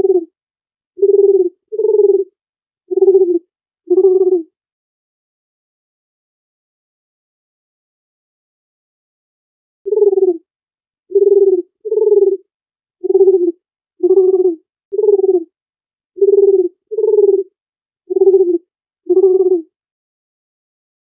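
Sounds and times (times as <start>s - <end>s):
dove cooing: 0.0s - 0.3s, 1.0s - 2.3s, 2.9s - 4.5s, 9.9s - 10.4s, 11.1s - 12.4s, 13.0s - 15.5s, 16.2s - 17.5s, 18.1s - 19.7s.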